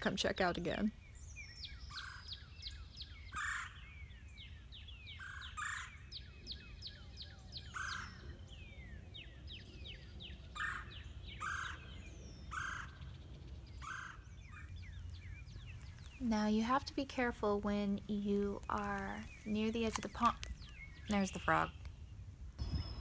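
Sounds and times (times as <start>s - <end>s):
birds chirping: 0.0s - 23.0s
short harsh bird calls: 3.4s - 3.8s.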